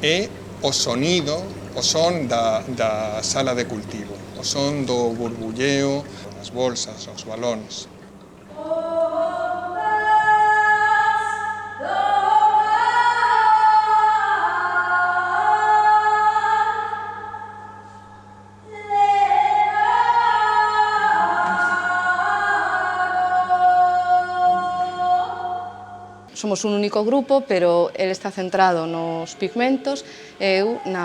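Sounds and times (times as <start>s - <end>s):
steady low hum: 0.0s - 31.0s
voices singing in close harmony: 8.5s - 17.4s, 18.7s - 26.2s.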